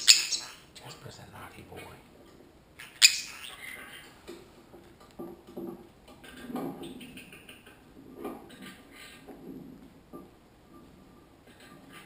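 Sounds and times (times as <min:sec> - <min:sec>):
parrots chattering softly: 0:00.0 - 0:04.8, 0:06.1 - 0:09.4.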